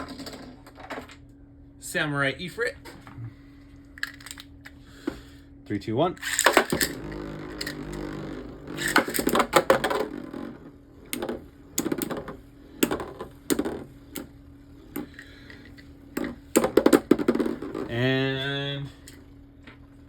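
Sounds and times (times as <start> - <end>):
spinning tops clacking together: 6.2 - 8.0, 8.6 - 10.2.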